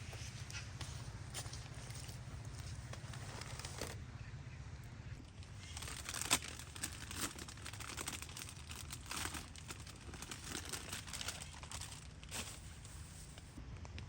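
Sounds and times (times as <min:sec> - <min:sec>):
plastic crinkling: 0:01.4 - 0:04.0, 0:05.2 - 0:13.6.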